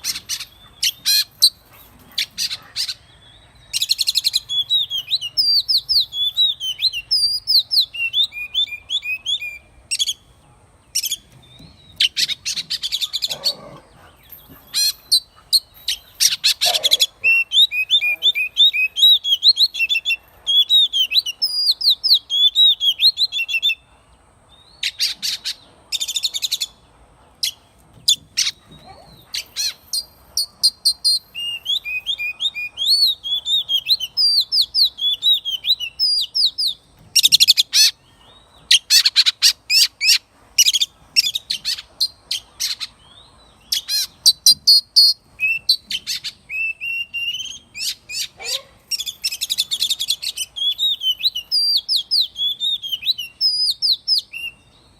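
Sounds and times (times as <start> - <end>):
bird singing whistled phrases: 3.7 - 10.2, 16.2 - 23.8, 31.0 - 37.6, 43.7 - 54.6.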